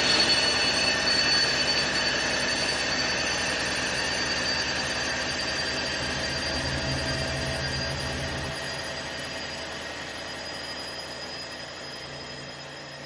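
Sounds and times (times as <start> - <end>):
washing machine spinning: 4.5 - 10.6.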